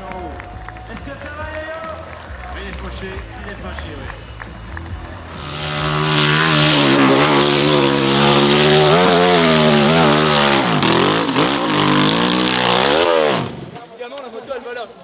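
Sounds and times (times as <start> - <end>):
dirt bike engine revving: 5.2 - 13.9.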